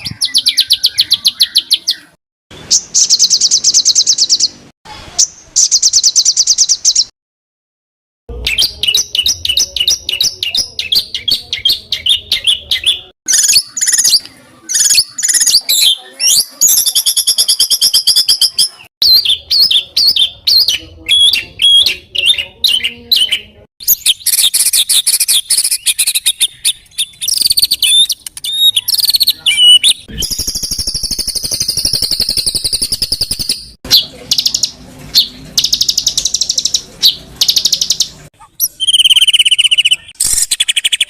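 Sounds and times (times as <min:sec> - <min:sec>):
songbird trilling: 0:08.5 - 0:41.0.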